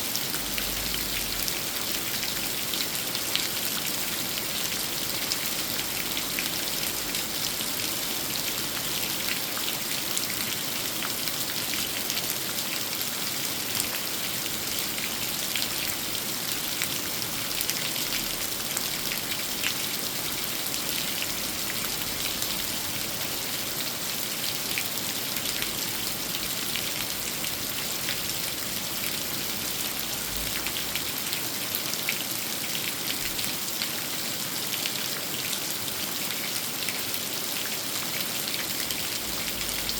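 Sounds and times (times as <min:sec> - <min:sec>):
steady rain on a tree: 0:00.0 - 0:39.9.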